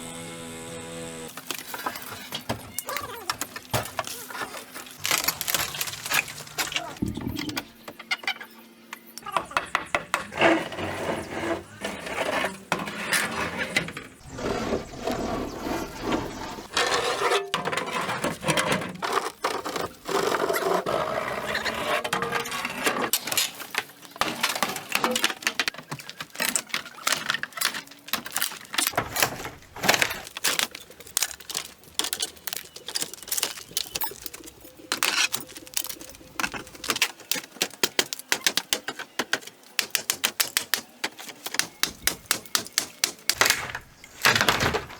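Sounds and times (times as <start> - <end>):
scraping or rustling: 3.4 - 7.7, 10.2 - 36.9.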